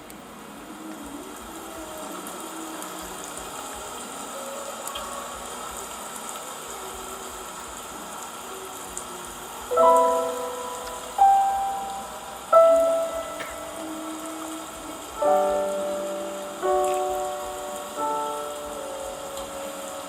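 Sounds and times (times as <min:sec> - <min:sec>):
rain hiss: 0:00.0 - 0:20.0
loud piano chord ringing: 0:09.7 - 0:14.6, 0:15.2 - 0:20.0.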